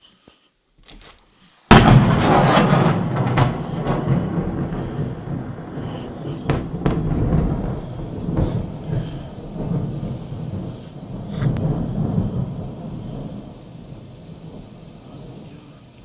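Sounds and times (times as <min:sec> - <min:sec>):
thunder crack and rumble: 0:01.7 - 0:16.0.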